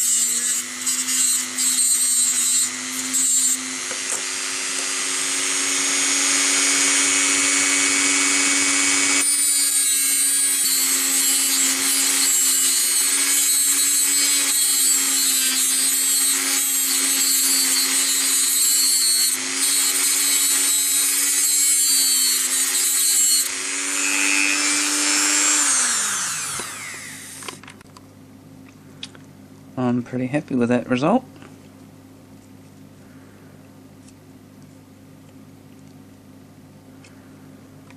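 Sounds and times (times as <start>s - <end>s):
rotary tool cutting bolts: 0.0s - 27.7s
rotary tool winding down: 1.2s - 27.6s.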